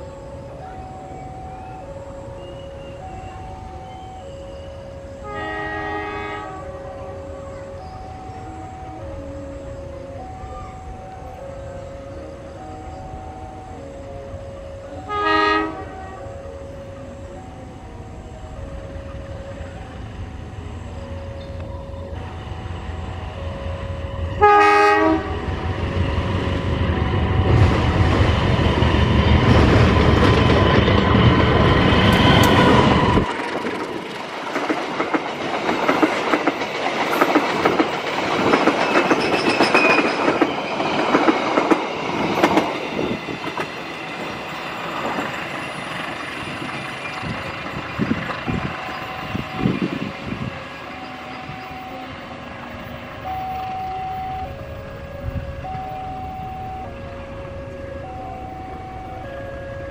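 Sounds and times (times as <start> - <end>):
diesel locomotive horn: 0.0 - 33.7, 45.6 - 59.9
locomotive engine rumbling: 0.0 - 59.9
train wheels clattering over rail joints: 27.5 - 49.8.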